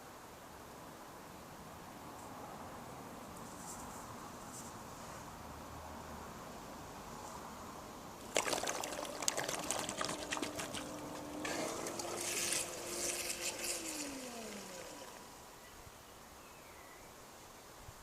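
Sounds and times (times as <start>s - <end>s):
water splashing and pouring: 8.2s - 15.4s
pool cleaner motor whining: 8.2s - 15.7s.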